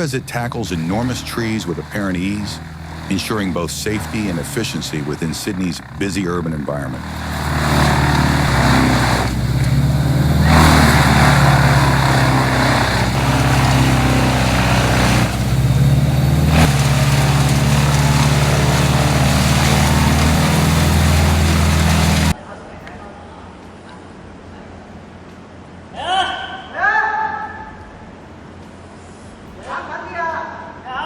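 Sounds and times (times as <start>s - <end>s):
diesel engine running: 0.0s - 22.4s
wood being chipped: 0.0s - 22.4s.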